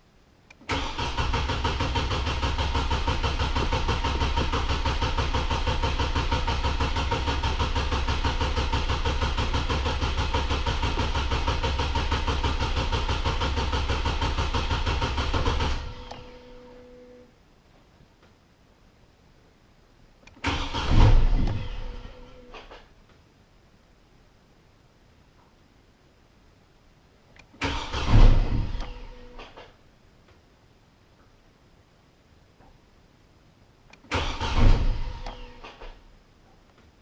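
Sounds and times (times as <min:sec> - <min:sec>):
truck engine cranking on starter: 0:00.6 - 0:16.6, 0:20.4 - 0:22.8, 0:27.6 - 0:29.6, 0:34.0 - 0:36.0
faint steady tone: 0:15.9 - 0:20.4.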